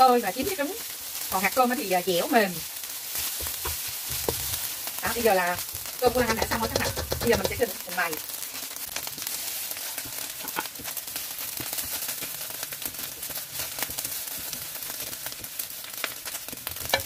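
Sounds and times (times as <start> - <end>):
rice sizzling in a pan: 0.0 - 17.0
spatula scraping a pan: 3.0 - 7.7, 16.2 - 17.0.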